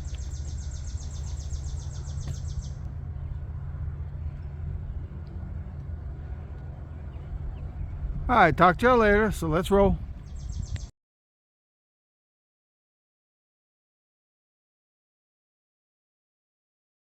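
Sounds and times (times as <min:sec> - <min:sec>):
bird rapid trill: 0:00.0 - 0:02.8, 0:10.2 - 0:10.9
wind rumbling on microphone: 0:00.0 - 0:10.9.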